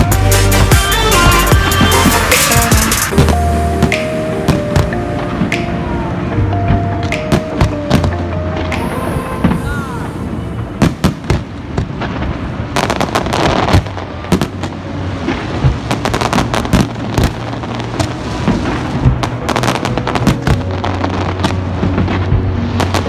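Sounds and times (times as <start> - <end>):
fireworks cracking and banging: 0.0 - 5.9, 10.8 - 23.0.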